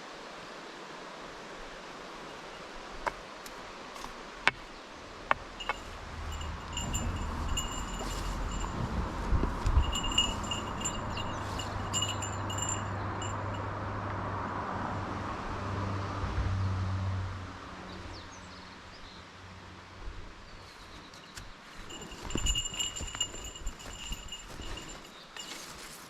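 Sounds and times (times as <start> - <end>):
small metal bell jingling: 5.5 - 13.7, 21.8 - 26.0.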